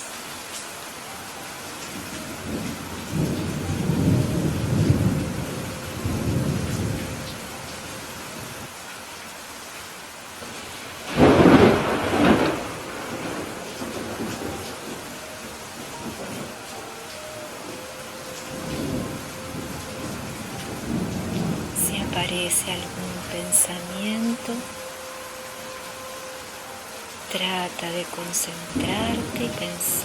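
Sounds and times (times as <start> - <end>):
steady rain falling: 0.0 - 30.0
thunder rumbling: 1.9 - 8.7, 10.4 - 25.0, 27.3 - 30.0
sharp thunderclap: 10.4 - 15.1.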